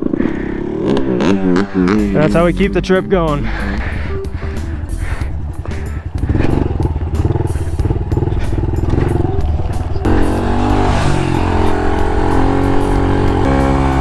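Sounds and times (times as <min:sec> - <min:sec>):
small motorbike engine revving: 0:03.4 - 0:14.0.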